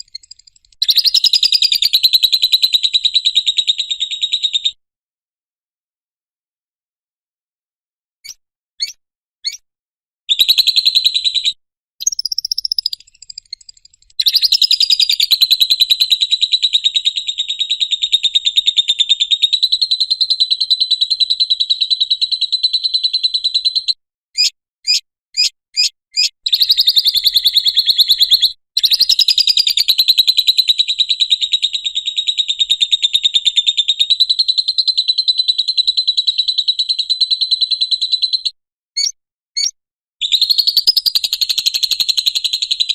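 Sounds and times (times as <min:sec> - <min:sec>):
bird short chirps: 0:00.0 - 0:02.6, 0:08.2 - 0:09.6, 0:10.3 - 0:15.4, 0:23.8 - 0:29.9, 0:38.3 - 0:42.2
bird fast trills: 0:00.0 - 0:04.6, 0:08.2 - 0:09.6, 0:10.3 - 0:30.5, 0:35.1 - 0:42.9.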